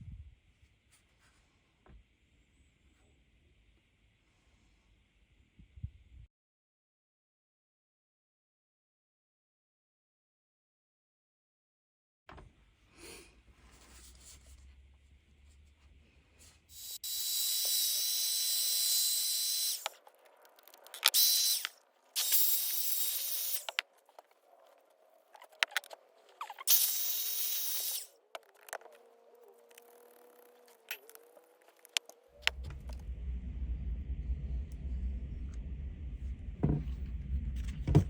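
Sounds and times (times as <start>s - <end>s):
angle grinder whining: 16.7s - 23.8s, 25.4s - 37.1s.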